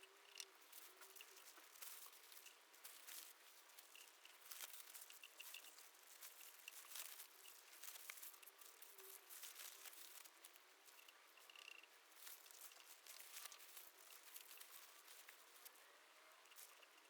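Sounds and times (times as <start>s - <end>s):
faint rustling: 0.0s - 17.0s.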